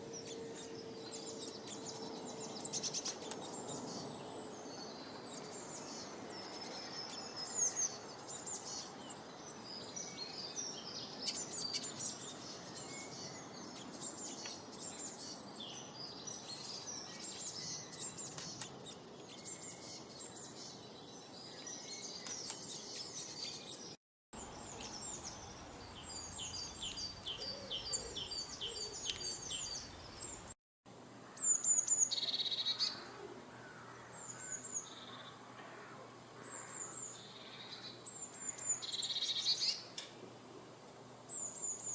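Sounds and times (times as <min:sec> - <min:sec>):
background hiss: 0:24.4 - 0:30.6
songbirds chirping and singing: 0:24.4 - 0:30.6.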